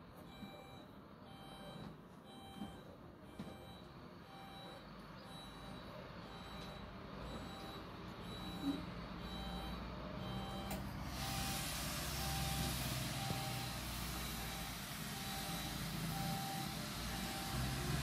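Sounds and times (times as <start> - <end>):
reversing alarm beeps: 0.3 - 18.0
diesel engine rumble: 4.2 - 18.0.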